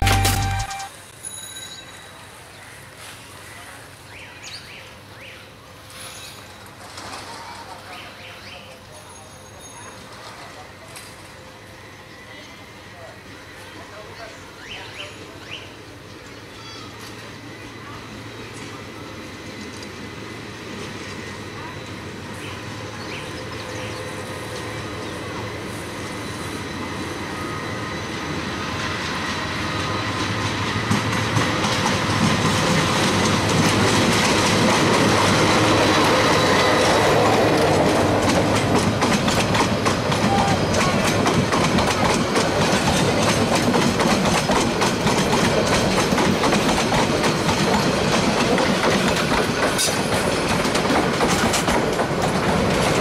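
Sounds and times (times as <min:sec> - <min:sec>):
passenger train passing: 0:00.0 - 0:53.0
coach wheels clattering over rails: 0:29.0 - 0:53.0.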